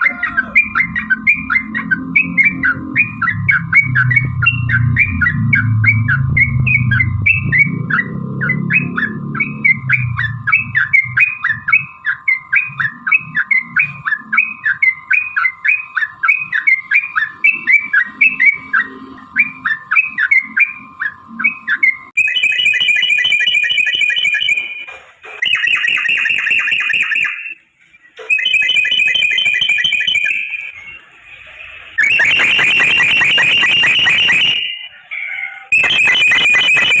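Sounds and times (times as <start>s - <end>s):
bird chirpy notes: 0.0s - 22.4s.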